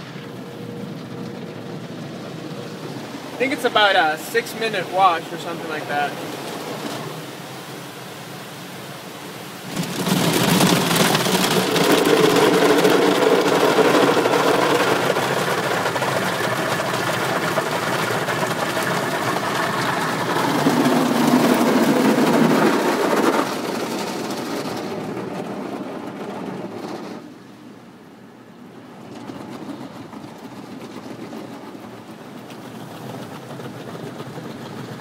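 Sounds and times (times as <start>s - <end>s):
water spray drumming on car: 0.0s - 26.2s.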